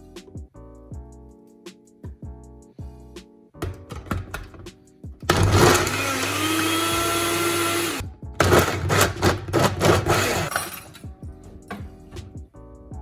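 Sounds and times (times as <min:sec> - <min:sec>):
electric blender running: 0:03.6 - 0:04.5, 0:05.3 - 0:11.0.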